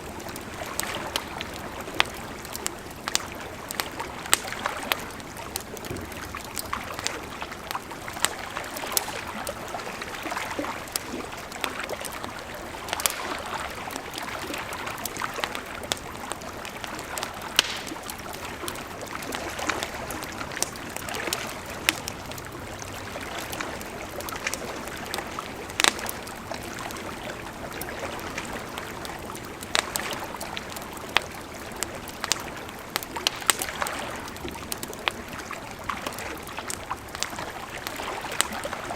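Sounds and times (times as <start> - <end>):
campfire crackling and popping: 0.0 - 38.9
river flowing: 0.0 - 38.9.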